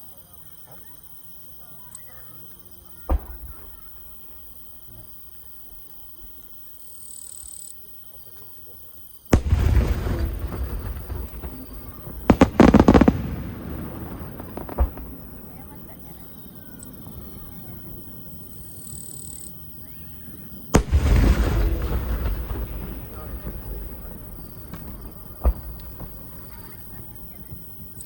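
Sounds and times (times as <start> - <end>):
fireworks bangs and crackles: 3.0 - 5.0, 9.3 - 28.0.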